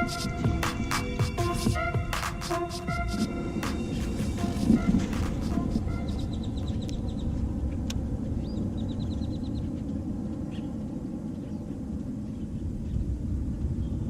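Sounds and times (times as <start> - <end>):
steady low rumble: 0.0 - 14.0
bird chirping high: 5.5 - 7.4.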